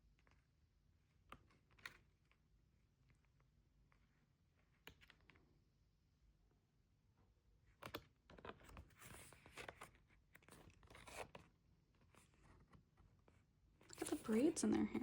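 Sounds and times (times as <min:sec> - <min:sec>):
paper and plastic rustling: 0:13.9 - 0:15.0.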